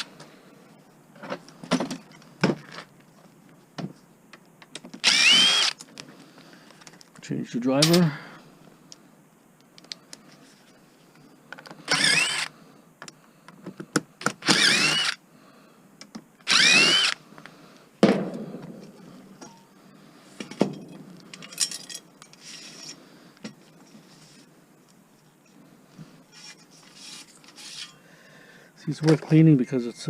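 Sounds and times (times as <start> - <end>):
cordless drill whining: 5.0 - 5.8, 11.9 - 12.5, 14.4 - 15.2, 16.4 - 17.2.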